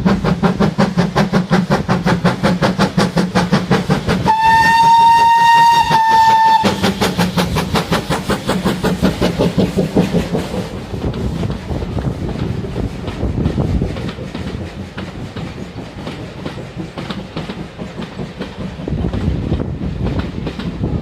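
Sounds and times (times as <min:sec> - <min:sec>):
steam locomotive exhaust beats: 0:00.0 - 0:21.0
steam locomotive whistle: 0:04.2 - 0:07.3.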